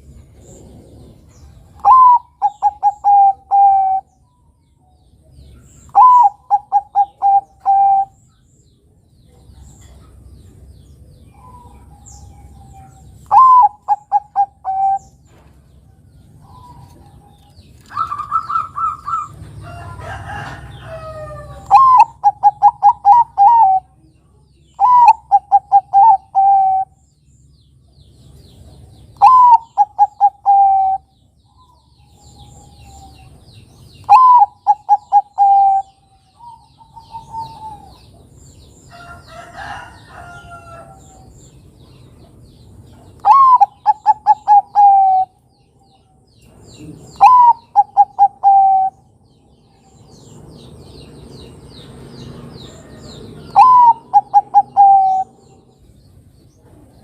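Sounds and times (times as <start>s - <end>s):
small birds chirping: 0.0s - 57.0s
dove cooing: 1.7s - 4.1s, 5.9s - 8.2s, 11.3s - 15.4s, 17.9s - 24.0s, 24.8s - 27.0s, 29.2s - 31.1s, 34.0s - 38.1s, 43.2s - 45.4s, 46.8s - 49.1s, 53.4s - 55.5s.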